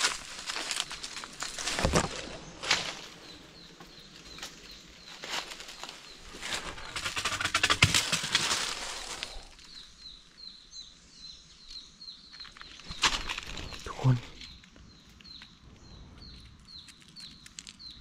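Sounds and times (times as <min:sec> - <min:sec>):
rustling in dry leaves: 0:00.0 - 0:03.4, 0:04.1 - 0:09.9, 0:12.5 - 0:14.6
bird chirping: 0:00.6 - 0:18.0.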